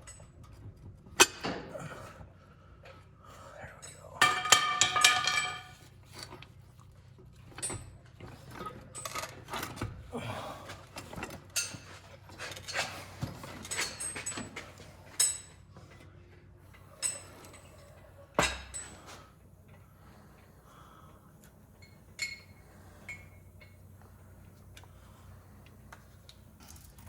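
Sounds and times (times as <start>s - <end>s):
metal tools clinking: 3.8s - 6.3s.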